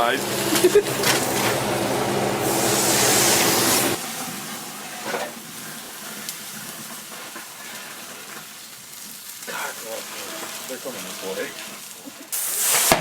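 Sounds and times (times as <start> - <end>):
microwave oven humming: 0.0 - 5.1
food burning and sizzling: 0.0 - 13.0.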